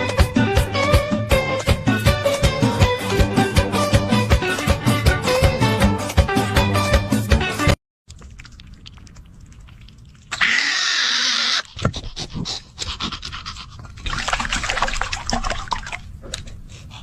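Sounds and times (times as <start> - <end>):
animal breathing hard: 11.6 - 14.2.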